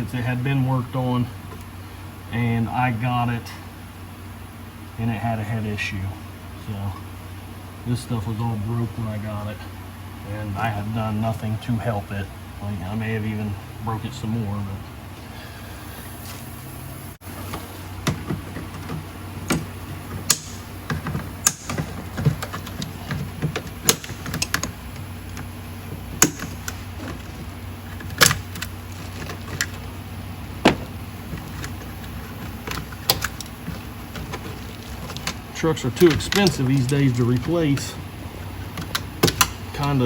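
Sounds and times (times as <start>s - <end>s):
steady low hum: 0.0s - 40.0s
tools and engine parts clinking: 17.2s - 40.0s
sharp knocks: 25.9s - 27.5s.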